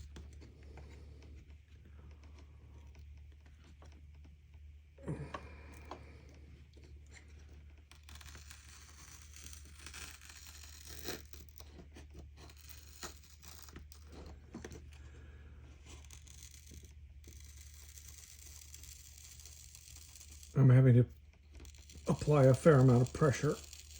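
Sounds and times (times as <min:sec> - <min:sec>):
steady low hum: 0:00.0 - 0:07.9
razor blade scraping glass: 0:08.0 - 0:11.6, 0:15.8 - 0:20.5, 0:21.6 - 0:23.9.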